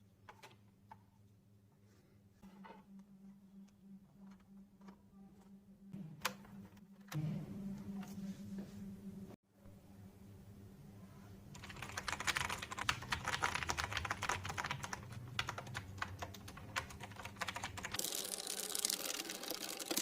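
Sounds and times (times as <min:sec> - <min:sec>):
low hum: 0:02.4 - 0:11.4
clicky mechanical keyboard typing: 0:11.5 - 0:20.0.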